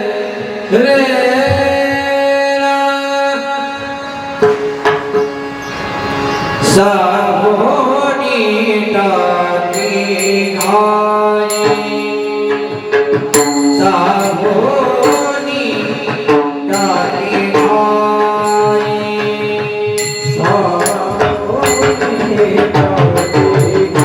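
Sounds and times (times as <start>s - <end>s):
person singing devotional song: 0.0s - 4.6s, 6.6s - 24.0s
held accompanying tones: 9.2s - 24.0s
drum strokes: 9.7s - 24.0s.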